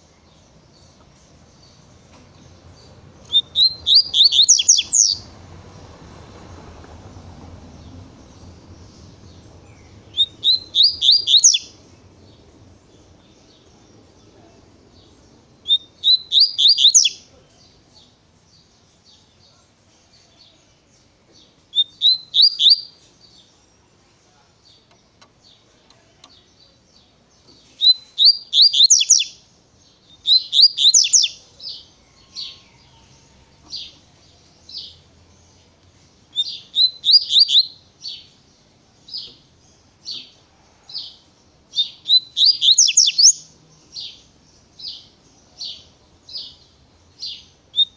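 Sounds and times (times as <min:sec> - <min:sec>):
bird singing whistled notes: 0:02.5 - 0:05.3, 0:07.7 - 0:17.3, 0:18.5 - 0:24.9, 0:27.6 - 0:34.0, 0:36.2 - 0:40.3, 0:41.0 - 0:47.9.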